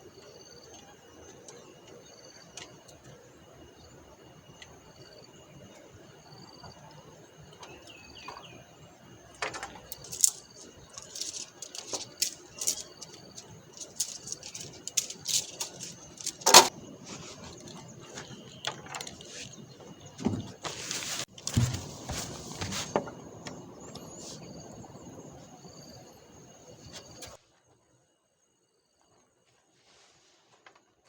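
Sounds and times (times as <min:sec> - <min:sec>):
bird chirping: 0:06.2 - 0:20.6
camping gear clicks and clinks: 0:09.4 - 0:24.1.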